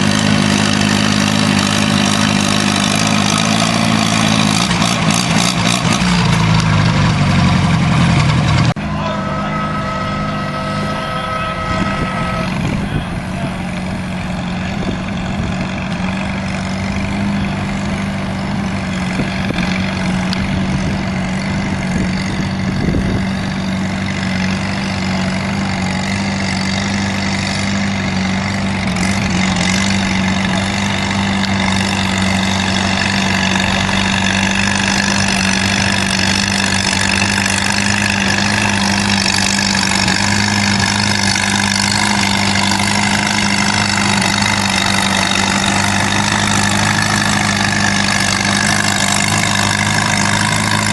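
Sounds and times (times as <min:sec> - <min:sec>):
engine hum: 0:00.0 - 0:50.9
loud tractor engine: 0:00.0 - 0:50.9
high whine: 0:08.6 - 0:15.3.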